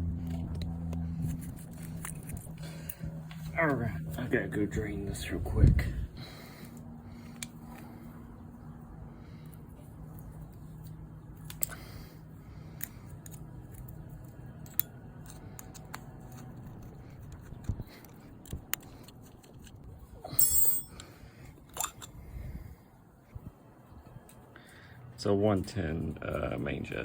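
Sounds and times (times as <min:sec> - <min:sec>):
low steady hum: 0:00.0 - 0:27.0
metal parts clinking: 0:20.3 - 0:21.1
tools clicking and tapping: 0:20.3 - 0:21.1.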